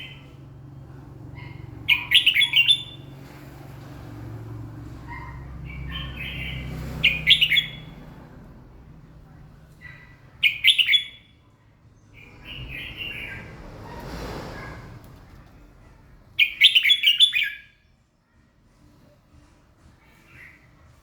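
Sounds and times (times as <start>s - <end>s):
bird singing chirping phrases: 0.0s - 3.2s, 5.1s - 13.7s, 16.4s - 17.8s.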